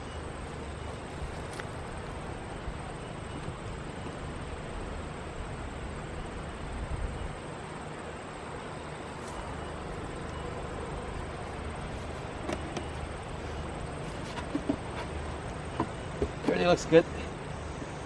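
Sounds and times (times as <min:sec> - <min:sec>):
honeybees buzzing: 0:08.7 - 0:18.0.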